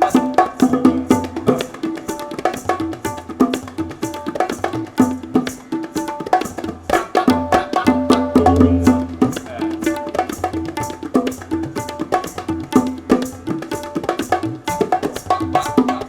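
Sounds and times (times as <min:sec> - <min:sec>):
hand drums fast rhythm: 0:00.0 - 0:16.0
deep bass drum hits: 0:08.4 - 0:09.3.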